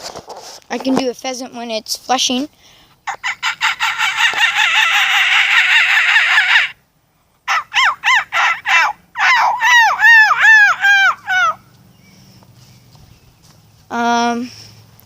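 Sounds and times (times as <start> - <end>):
person imitating pheasant call: 3.1 - 6.8, 7.5 - 11.6.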